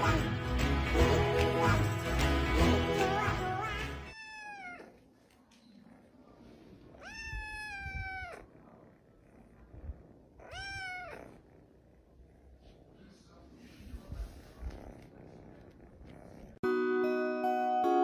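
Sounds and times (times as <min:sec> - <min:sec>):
music: 0:00.0 - 0:04.1, 0:16.6 - 0:18.0
cat meowing: 0:03.2 - 0:05.1, 0:06.9 - 0:08.5, 0:10.4 - 0:11.4.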